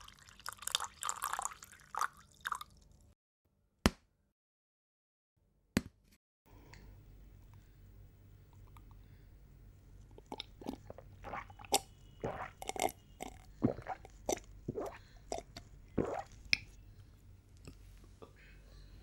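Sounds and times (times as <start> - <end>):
person gulping and swallowing: 10.1 - 16.8.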